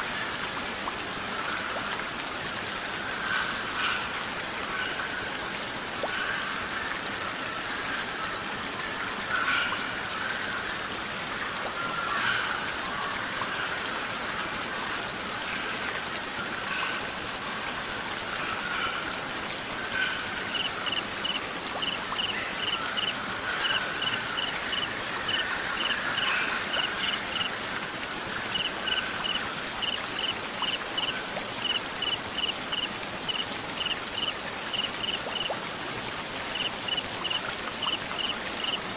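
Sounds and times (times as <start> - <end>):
rain hissing: 20.4 - 38.9
cricket chirping: 20.5 - 23.1, 23.7 - 25.9, 28.5 - 35.5, 36.5 - 38.8.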